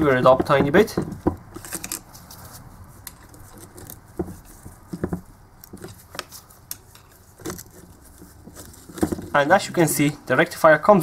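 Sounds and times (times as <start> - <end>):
screwdriver clicking and scraping: 1.0 - 9.4.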